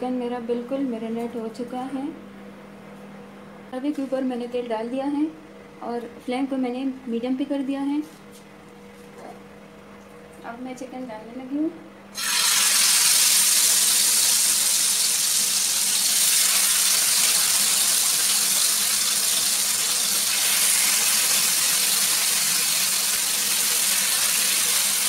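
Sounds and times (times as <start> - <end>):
chicken sizzling in hot oil: 12.2 - 25.0.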